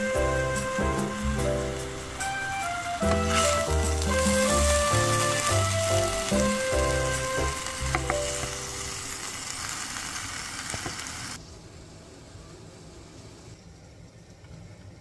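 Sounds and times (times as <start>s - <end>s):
background music: 0.0s - 9.1s
meat sizzling in a pot: 0.0s - 11.4s
wooden spatula knocking pot: 7.9s - 8.6s.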